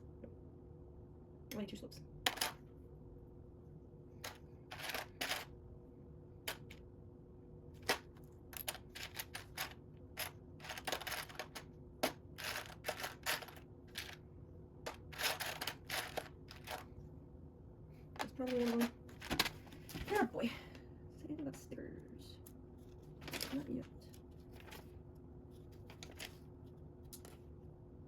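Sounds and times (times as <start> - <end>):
plastic bricks clicking and rattling: 4.2 - 5.5, 7.8 - 14.2, 14.9 - 16.8.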